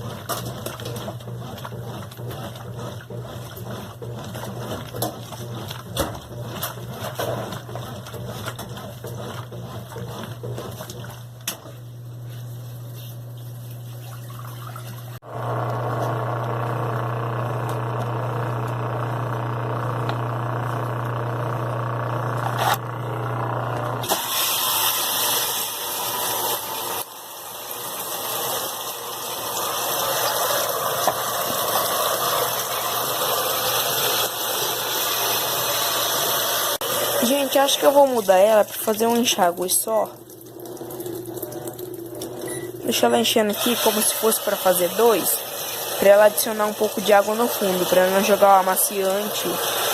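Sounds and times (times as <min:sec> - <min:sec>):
washing machine hum: 0:00.0 - 0:49.9
water rushing into tub: 0:14.0 - 0:15.3, 0:24.0 - 0:49.9.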